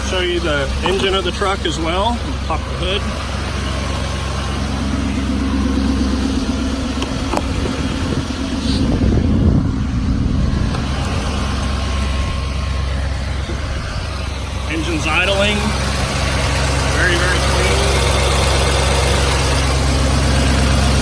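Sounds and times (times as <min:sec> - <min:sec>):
diesel truck engine idling: 0:00.0 - 0:21.0.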